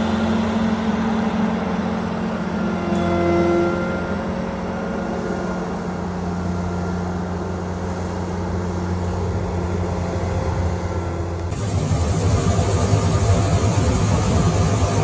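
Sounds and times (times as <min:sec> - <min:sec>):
farm machinery engine humming: 0:03.9 - 0:15.0
rough engine sound: 0:07.2 - 0:15.0.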